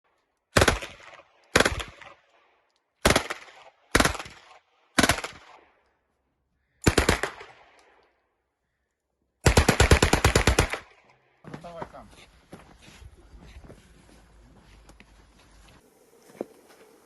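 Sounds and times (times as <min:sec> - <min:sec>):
automatic gunfire bursts: 0:00.6 - 0:02.1, 0:03.0 - 0:05.6, 0:06.8 - 0:07.6, 0:09.4 - 0:10.9.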